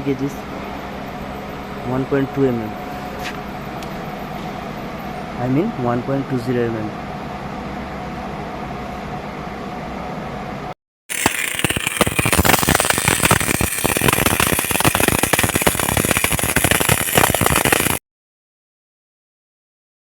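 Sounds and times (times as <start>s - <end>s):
welding arc crackling: 11.1s - 18.0s.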